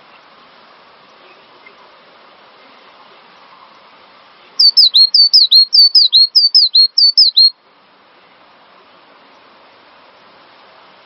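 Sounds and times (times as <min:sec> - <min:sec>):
faint steady hiss: 0:00.0 - 0:11.0
bird whistling two-note phrase: 0:04.6 - 0:07.5.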